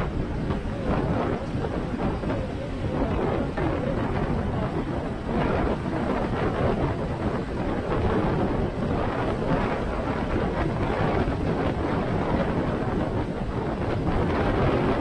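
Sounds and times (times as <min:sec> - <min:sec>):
motorcycle engine rumble: 0:00.0 - 0:11.8
wind buffeting microphone: 0:00.0 - 0:15.0.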